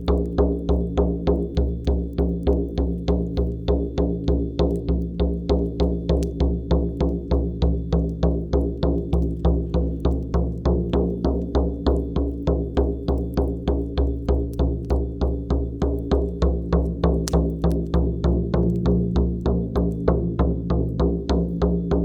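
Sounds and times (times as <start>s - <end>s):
frame drum beaten: 0.0s - 22.0s.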